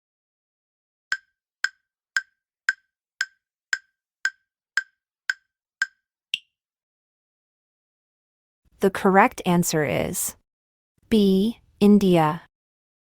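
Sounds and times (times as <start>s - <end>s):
countdown timer ticking: 1.1s - 6.5s.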